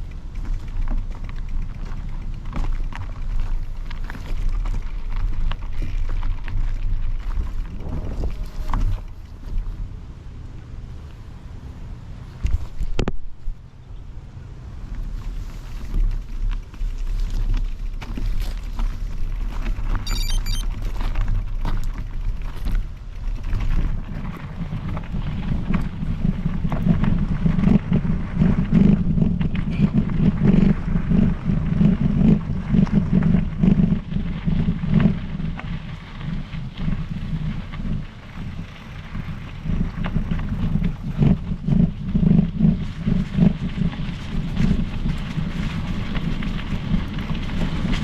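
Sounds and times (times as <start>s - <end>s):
wind buffeting microphone: 0.0s - 20.0s
bike tyres rumbling on trail: 0.0s - 48.0s.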